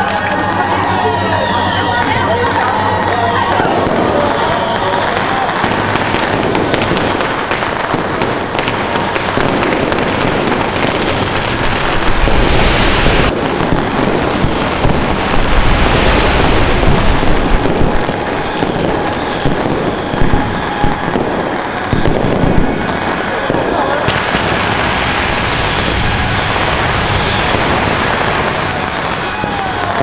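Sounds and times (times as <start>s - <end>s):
firecrackers crackling: 0.0s - 30.0s.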